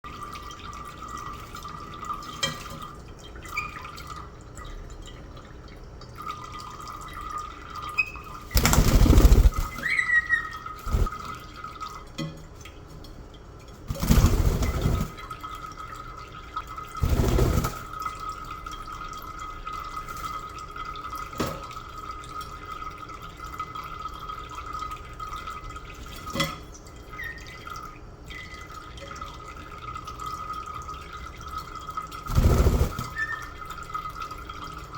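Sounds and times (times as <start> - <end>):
parrot chirping: 9.4 - 11.0.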